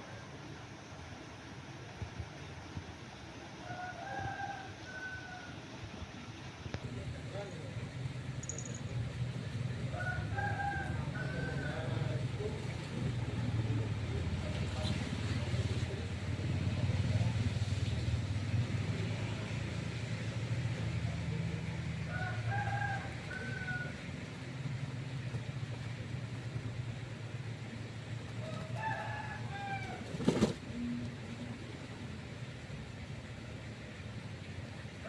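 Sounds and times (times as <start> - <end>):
rooster crowing: 3.6 - 5.6, 8.4 - 15.1, 20.6 - 25.3, 28.3 - 30.4
rain hissing: 6.8 - 28.6.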